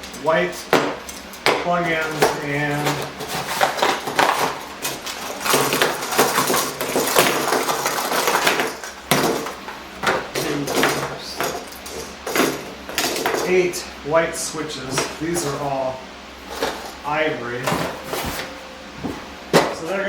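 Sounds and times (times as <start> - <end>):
small hard objects clattering: 0.8 - 13.7.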